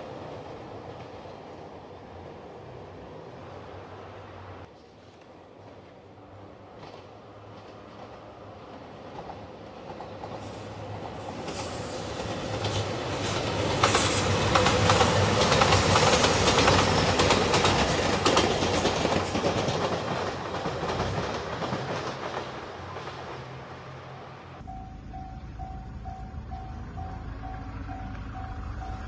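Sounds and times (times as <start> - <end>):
diesel train passing: 0.0 - 29.0
wheels clacking over rail joints: 6.7 - 24.2.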